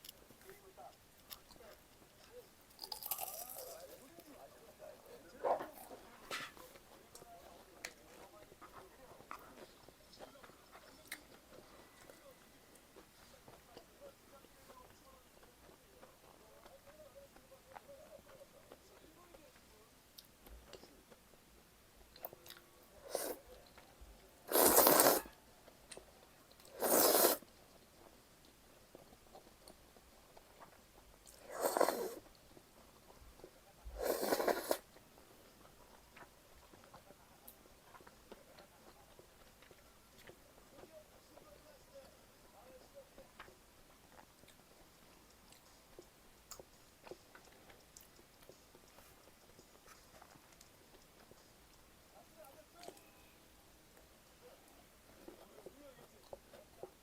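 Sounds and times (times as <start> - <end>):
person chewing food: 1.2 - 4.0, 22.0 - 42.5, 43.1 - 52.0
crunching bites into fried food: 2.8 - 3.9
mouth clicks: 26.6 - 27.4.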